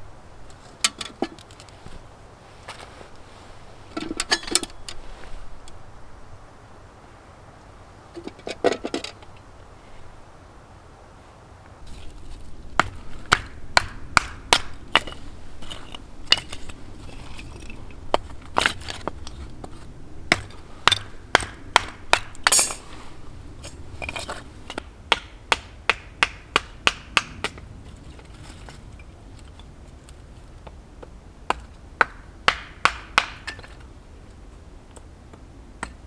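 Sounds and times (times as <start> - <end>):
hand tool sharp strikes: 22.4 - 22.9.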